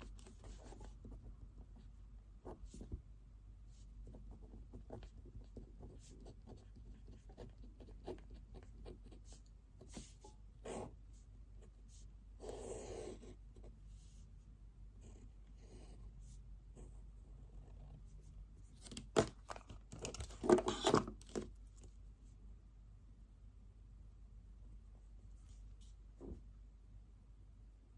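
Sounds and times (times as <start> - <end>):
pen scratching on paper: 0.0 - 3.0, 3.7 - 11.0, 11.6 - 14.1, 15.0 - 16.1.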